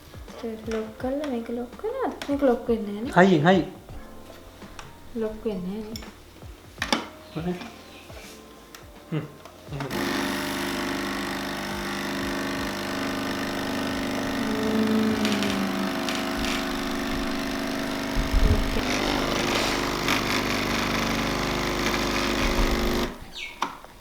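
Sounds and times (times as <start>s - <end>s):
coffee machine pump buzzing: 9.8s - 23.7s
hissing: 9.8s - 23.9s.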